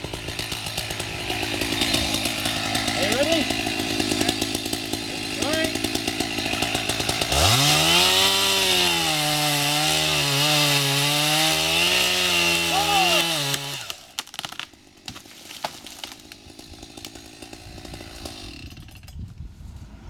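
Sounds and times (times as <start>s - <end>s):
chainsaw at full throttle: 0.0s - 19.2s
sharp cracks and knocks: 13.2s - 16.4s.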